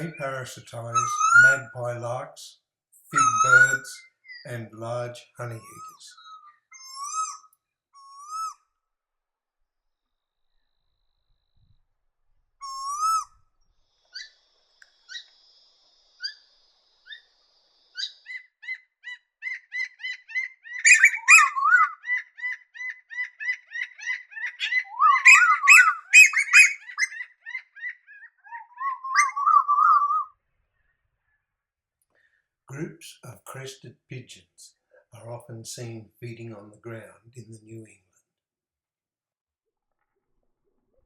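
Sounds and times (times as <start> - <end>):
koel calling: 0.0 - 2.4, 3.1 - 6.2, 19.4 - 30.2.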